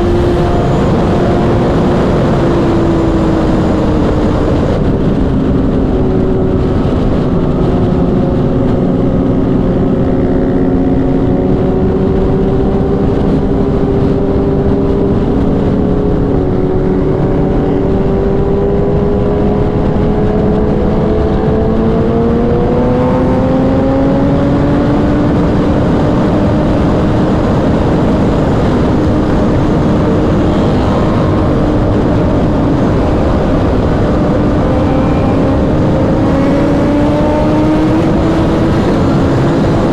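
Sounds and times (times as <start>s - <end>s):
motorcycle engine at speed: 0.0s - 39.9s
wind rush: 0.0s - 39.9s.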